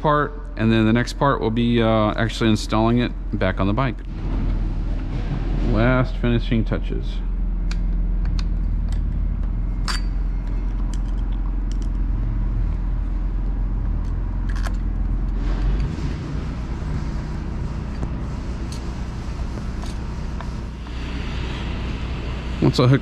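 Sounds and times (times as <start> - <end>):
low mechanical hum: 0.0 - 23.0
small metal parts clicking: 9.9 - 12.0, 14.0 - 15.0.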